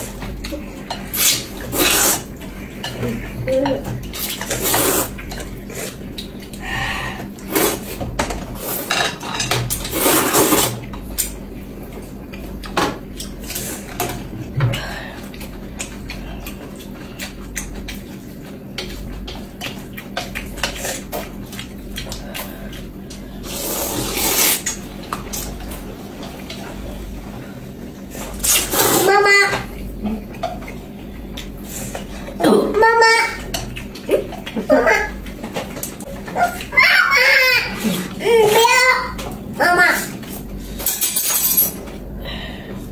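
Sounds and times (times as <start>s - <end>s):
utensils clinking on plates: 8.2s - 11.3s, 40.2s - 42.0s.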